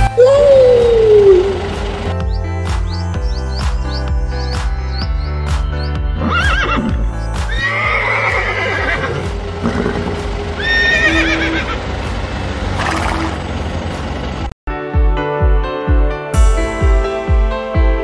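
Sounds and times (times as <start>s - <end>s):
background music: 0.0s - 14.1s, 14.7s - 18.0s
horse whinnying: 6.2s - 11.8s.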